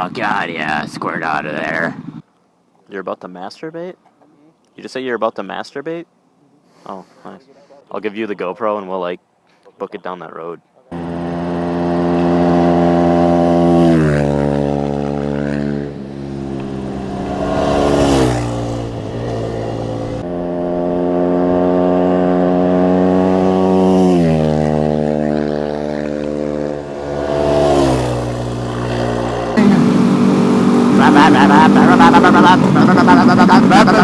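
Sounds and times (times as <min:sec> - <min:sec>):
motorcycle engine running: 0:10.9 - 0:34.0
wind on microphone: 0:16.4 - 0:21.8.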